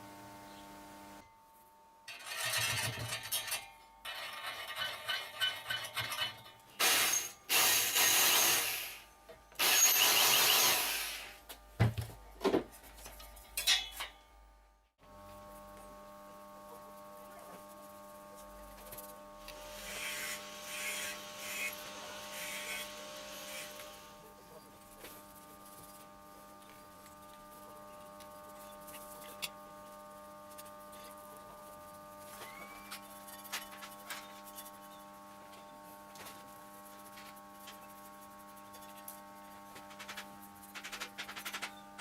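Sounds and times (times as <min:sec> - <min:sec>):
tool scraping strokes: 0:02.1 - 0:09.0, 0:18.8 - 0:26.1.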